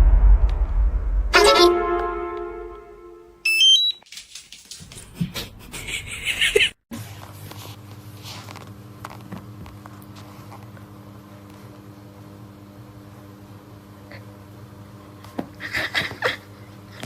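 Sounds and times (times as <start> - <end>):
steady low hum: 0.0 - 3.4
rising electronic beeps: 1.3 - 4.0
electronic ringing tone: 1.4 - 4.0.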